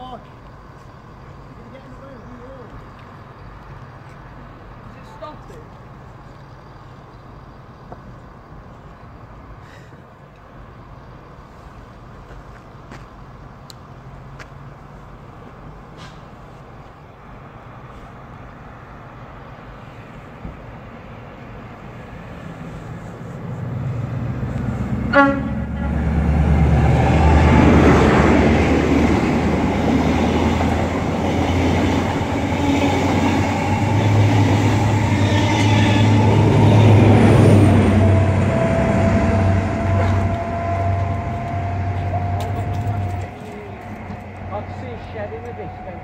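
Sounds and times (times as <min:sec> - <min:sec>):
train engine and wheel rumble: 0:00.0 - 0:46.0
train horn toot: 0:25.0 - 0:26.4, 0:32.4 - 0:46.0.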